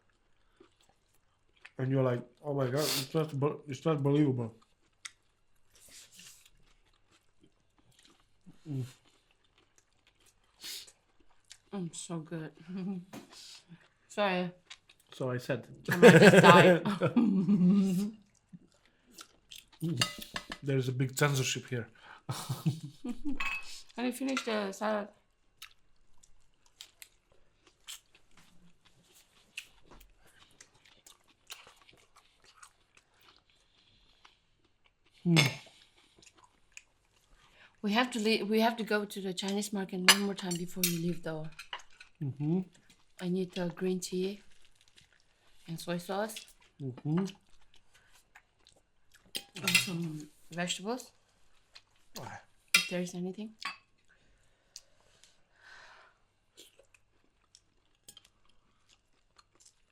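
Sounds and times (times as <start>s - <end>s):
chewing crunchy food: 0.0s - 2.4s, 4.2s - 11.8s, 12.5s - 15.3s, 18.2s - 20.4s, 25.2s - 37.8s, 40.7s - 50.5s, 51.1s - 52.8s, 53.5s - 55.5s, 56.1s - 59.9s.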